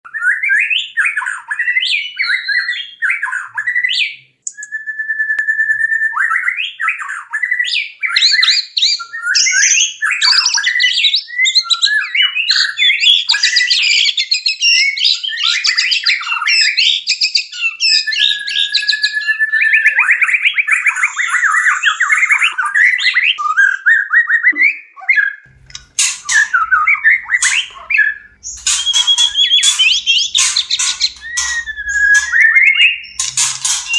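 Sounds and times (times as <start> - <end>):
bird singing varied song: 0.1 - 24.3, 25.4 - 33.9.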